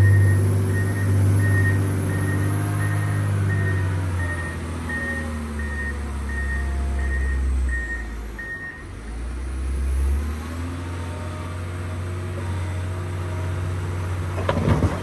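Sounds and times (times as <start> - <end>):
reversing alarm beeping: 0.0 - 9.2
diesel engine running: 0.0 - 15.0.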